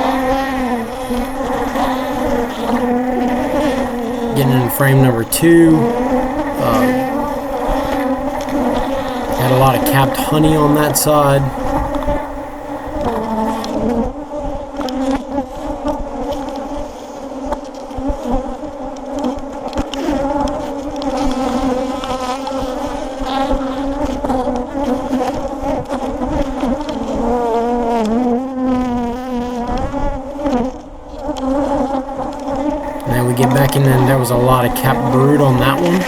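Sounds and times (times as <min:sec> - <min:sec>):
honeybees buzzing: 0:00.0 - 0:13.8, 0:32.9 - 0:36.0.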